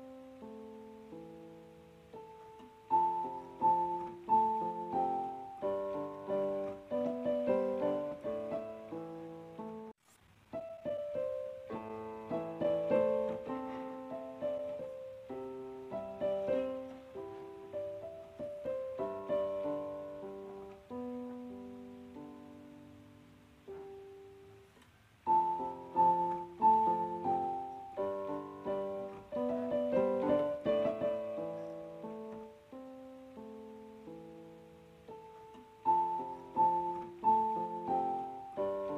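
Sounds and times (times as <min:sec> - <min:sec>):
soft solo piano music: 0:00.0 - 0:38.9.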